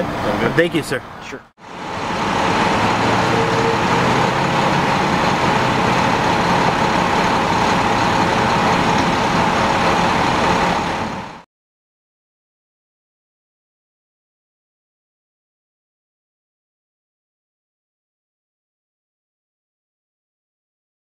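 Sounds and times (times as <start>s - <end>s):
large vehicle engine humming: 0.0s - 11.5s.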